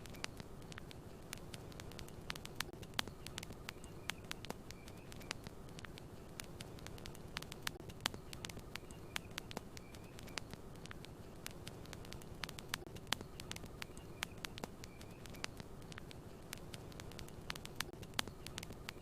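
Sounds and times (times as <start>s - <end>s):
campfire crackling and popping: 0.0s - 19.0s
low rumble of burning fire: 0.0s - 19.0s.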